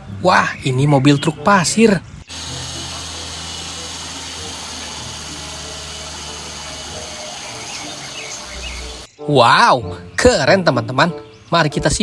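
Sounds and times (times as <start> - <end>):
machine humming: 2.2 - 9.1.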